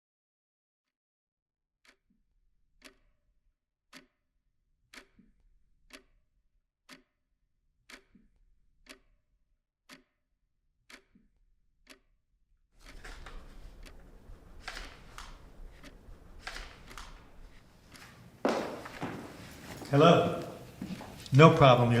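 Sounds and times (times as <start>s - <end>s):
clock ticking faintly: 1.8s - 2.2s, 2.8s - 3.2s, 3.9s - 4.2s, 4.9s - 6.2s, 6.9s - 7.2s, 7.8s - 9.2s, 9.9s - 10.2s, 10.8s - 12.2s, 12.8s - 19.1s.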